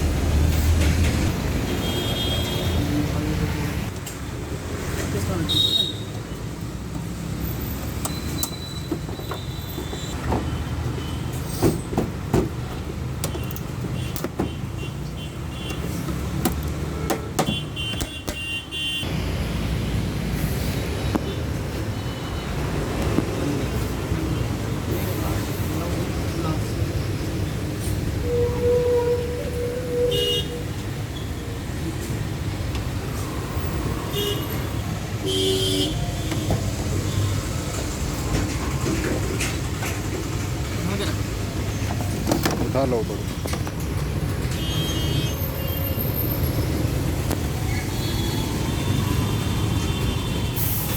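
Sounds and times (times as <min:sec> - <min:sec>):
road traffic rumble: 0:00.0 - 0:50.9
vehicle horns tooting: 0:05.5 - 0:06.4, 0:17.2 - 0:19.1, 0:28.2 - 0:30.8, 0:34.1 - 0:36.5, 0:44.5 - 0:45.8
sharp clicks and knocks: 0:11.9 - 0:14.6, 0:15.7 - 0:18.5.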